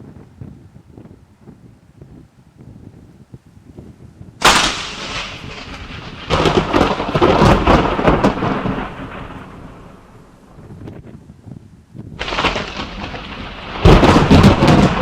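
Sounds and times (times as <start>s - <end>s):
thunder crack and rumble: 4.4s - 15.0s.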